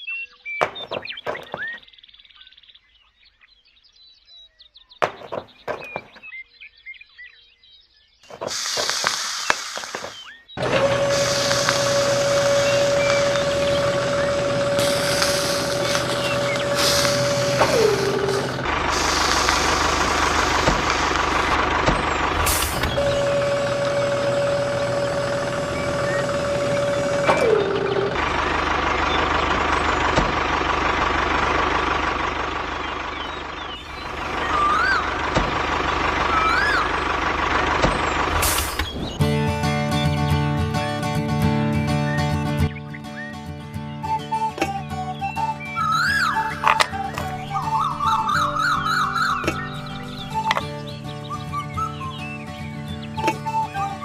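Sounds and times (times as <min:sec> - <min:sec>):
continuous machine noise: 0:08.3 - 0:40.1, 0:44.3 - 0:54.0
motor whining: 0:08.4 - 0:39.4, 0:44.4 - 0:52.0.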